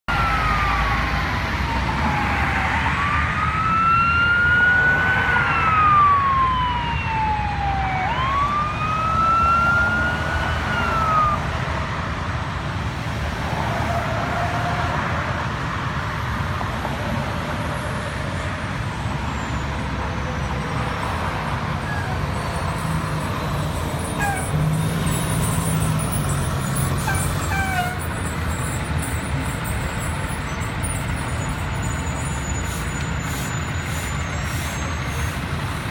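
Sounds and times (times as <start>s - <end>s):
fire engine siren wailing: 0.0s - 11.7s, 20.2s - 35.9s
truck engine and road noise: 0.0s - 35.9s.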